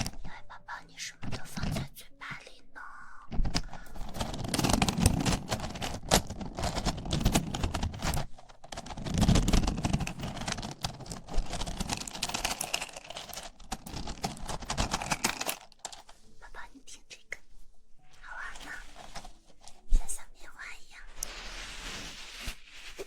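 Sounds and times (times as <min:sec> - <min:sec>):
wooden pieces clicking together: 0:03.3 - 0:16.2.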